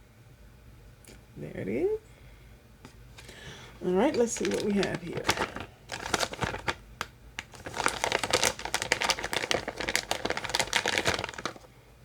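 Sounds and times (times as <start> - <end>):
crinkly packaging crackling: 3.2 - 11.7.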